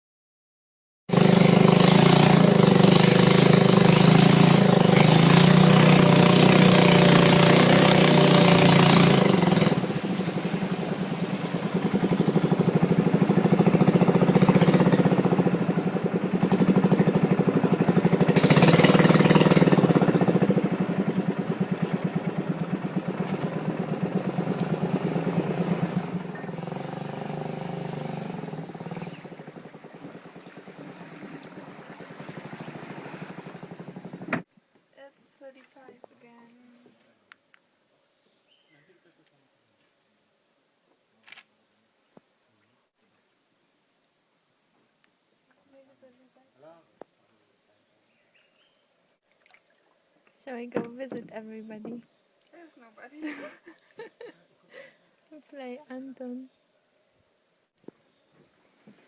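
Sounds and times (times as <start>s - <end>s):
boat engine humming: 1.1s - 34.5s, 49.7s - 56.5s.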